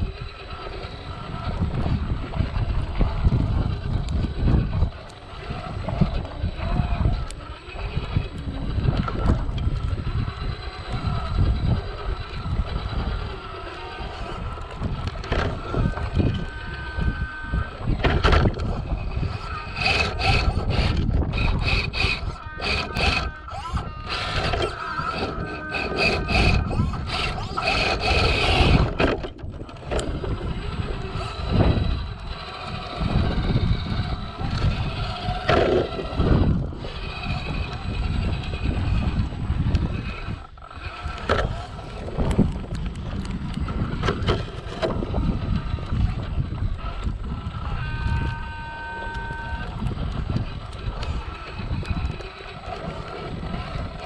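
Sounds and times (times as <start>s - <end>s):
low rumble over rocks: 0.0s - 54.0s
toy truck motor whine: 0.0s - 54.0s.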